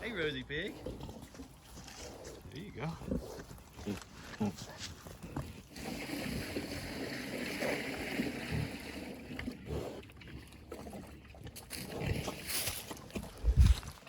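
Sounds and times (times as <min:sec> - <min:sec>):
pig slurping food: 0:00.0 - 0:14.0.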